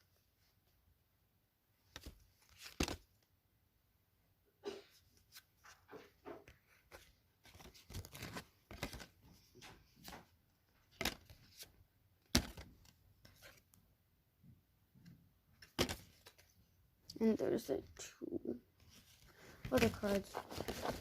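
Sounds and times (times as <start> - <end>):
cards flipped by hand: 1.9 - 3.1, 5.2 - 11.7, 15.6 - 16.5, 18.8 - 21.0.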